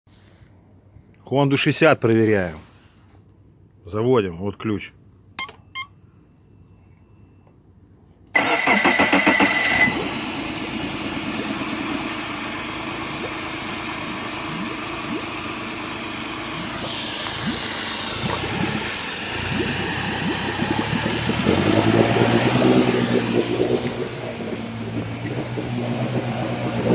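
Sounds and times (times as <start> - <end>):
electric starter cranking whine: 8.4 - 26.9
outboard motor idling: 8.4 - 26.9.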